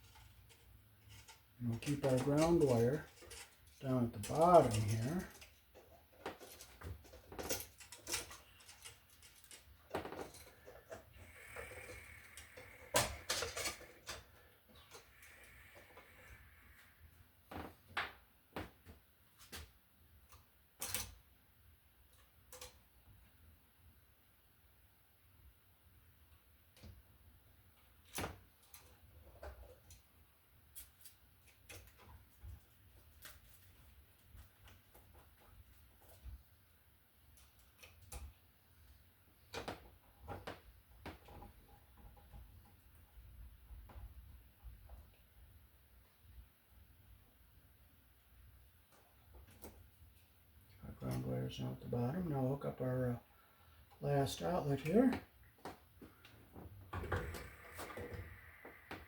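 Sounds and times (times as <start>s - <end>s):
hand tools and wires clicking: 0.0s - 16.8s.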